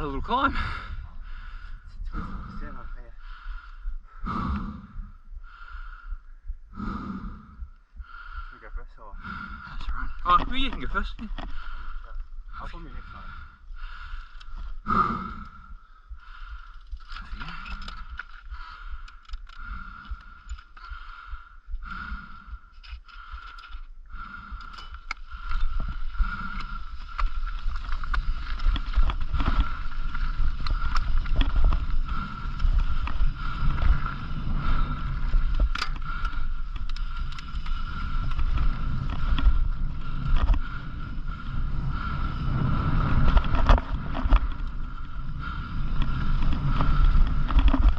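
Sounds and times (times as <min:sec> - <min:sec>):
bicycle tyres rolling: 0:09.2 - 0:47.9
wind on microphone: 0:24.1 - 0:47.9.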